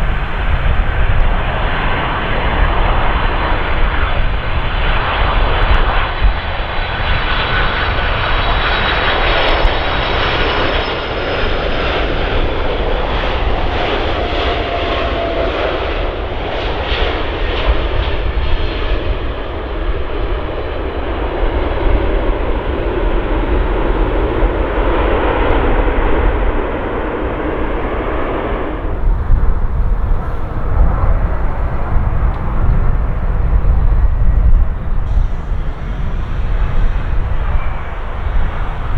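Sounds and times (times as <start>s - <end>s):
high engine whine: 0.0s - 38.9s
jet engines roaring: 0.0s - 38.9s
low rumble: 11.8s - 38.9s.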